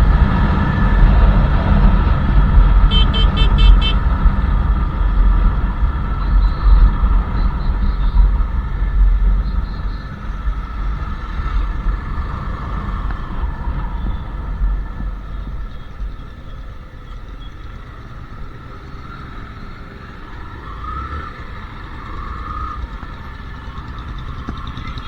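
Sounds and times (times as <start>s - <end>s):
motorcycle engine rumble: 0.0s - 25.0s
horn beeps: 2.8s - 4.1s.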